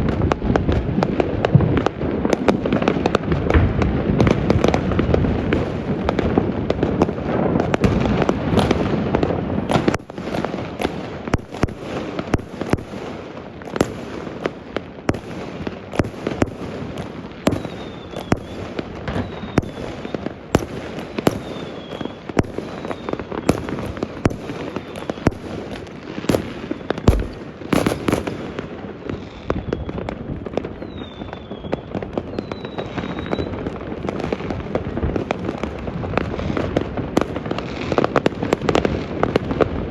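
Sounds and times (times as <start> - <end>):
distant fireworks crackling: 0.0 - 39.9
falling firework whistles: 17.4 - 33.6
sharp firework bangs: 17.5 - 28.9.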